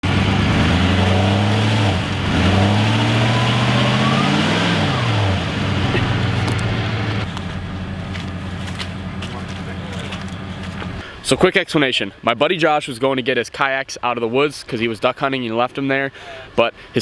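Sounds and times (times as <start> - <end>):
vehicle engine revving hard: 0.0 - 11.0.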